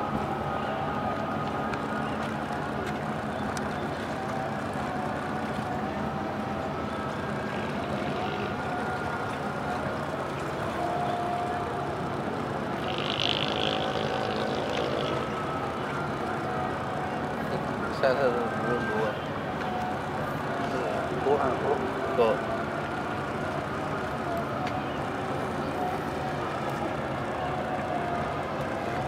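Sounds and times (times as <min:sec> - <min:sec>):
ship engines droning: 0:00.0 - 0:29.0.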